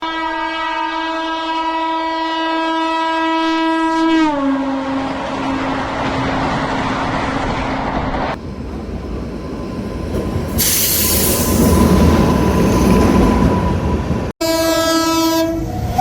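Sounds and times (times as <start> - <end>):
low train horn: 0.0 - 6.0, 14.4 - 16.0
train wheels rumbling on rails: 5.0 - 14.3
loud high hiss: 10.6 - 11.7.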